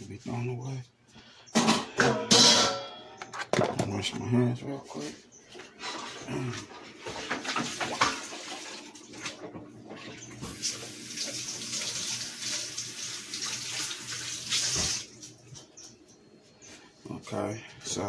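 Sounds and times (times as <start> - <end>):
faucet running into sink: 10.3 - 15.1.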